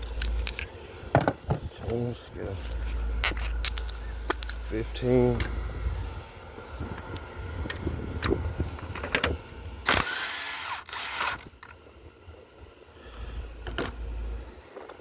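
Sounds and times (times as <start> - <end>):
power wrench whining: 8.2 - 11.5.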